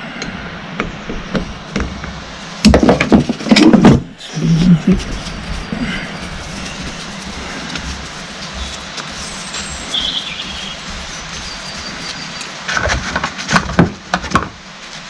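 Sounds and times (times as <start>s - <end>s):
steady hiss: 0.0s - 15.0s
pump parts clicking and knocking: 0.8s - 4.1s, 12.4s - 14.6s.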